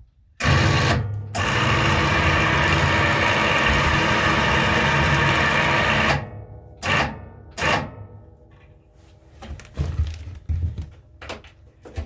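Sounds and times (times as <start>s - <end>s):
electric winch motor whirring: 0.4s - 7.8s.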